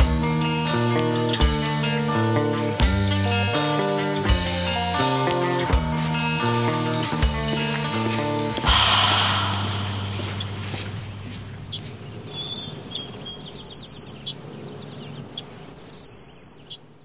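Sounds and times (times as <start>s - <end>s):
song chord: 8.6s - 11.0s
songbird chirping and trilling: 8.9s - 17.0s.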